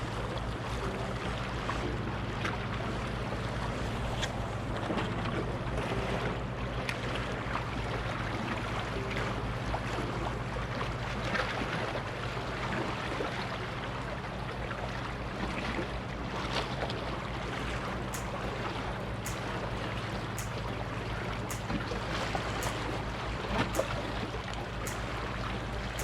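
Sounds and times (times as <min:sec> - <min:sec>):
low hum: 0:00.0 - 0:26.0
faint clicks: 0:17.8 - 0:26.0.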